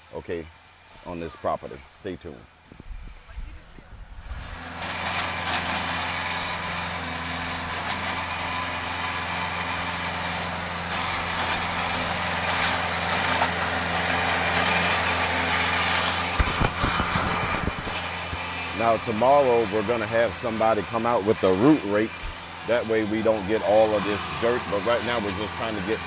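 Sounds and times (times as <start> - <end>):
tractor diesel engine running: 0.0 - 26.0
low thumps: 16.1 - 18.8.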